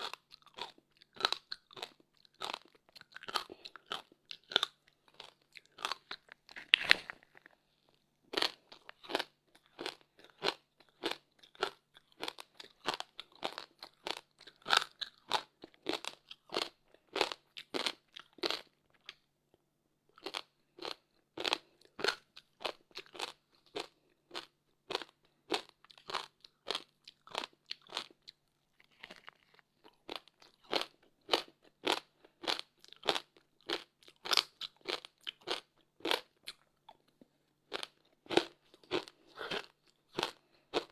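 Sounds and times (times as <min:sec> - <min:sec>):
crunching frozen ice: 0:05.7 - 0:07.6.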